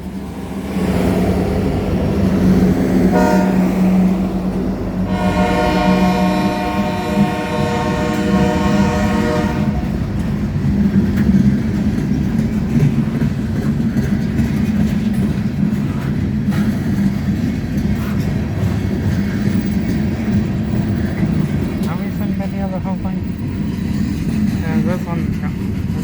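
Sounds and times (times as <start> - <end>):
diesel locomotive rumble: 0.0 - 26.0
wheels clicking over rail joints: 0.0 - 26.0
train horn chord: 3.1 - 4.3, 5.0 - 10.0.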